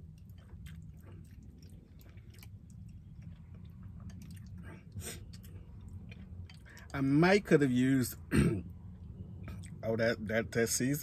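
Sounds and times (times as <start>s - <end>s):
person chewing: 0.0s - 7.0s
low steady hum: 0.0s - 11.0s.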